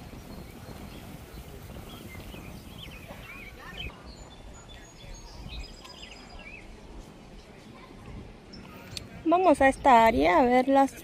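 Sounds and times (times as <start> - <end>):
small birds chirping: 0.0 - 7.0.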